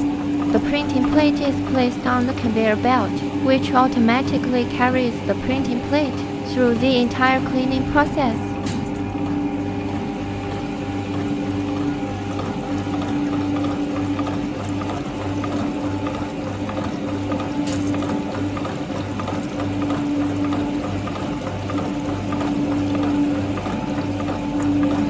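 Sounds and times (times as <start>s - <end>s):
low throb: 0.0s - 12.3s
liquid being pumped: 0.0s - 25.0s
machine humming: 0.0s - 25.0s.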